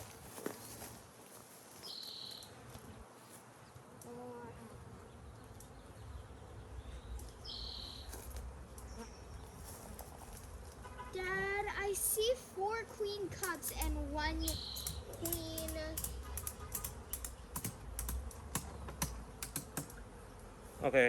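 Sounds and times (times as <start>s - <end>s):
honeybees buzzing: 2.5s - 21.0s.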